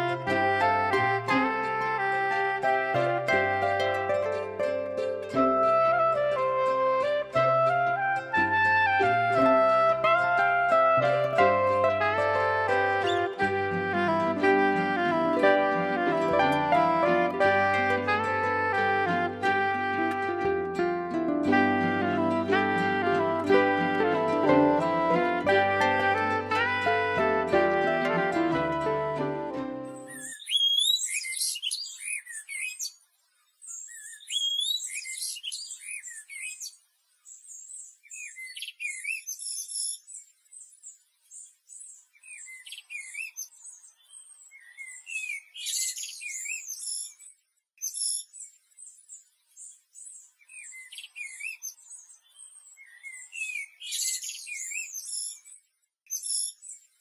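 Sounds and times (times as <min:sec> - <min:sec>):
bird chirps and trills: 0:29.8 - 0:57.0.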